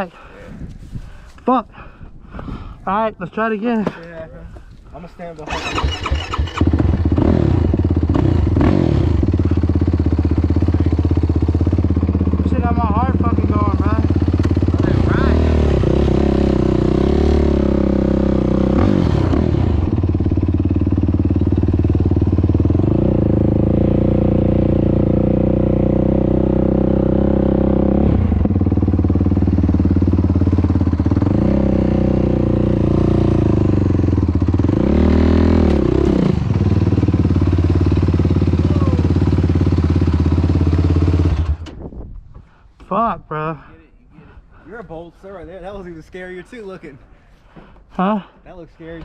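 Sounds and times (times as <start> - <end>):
four-stroke engine revving: 5.4 - 41.7.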